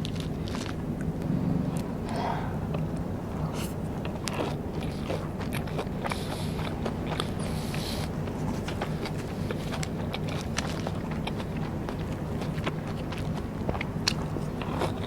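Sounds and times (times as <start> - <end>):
chewing and biting crisp snacks: 0.0 - 15.0
steady low hum: 0.0 - 15.0.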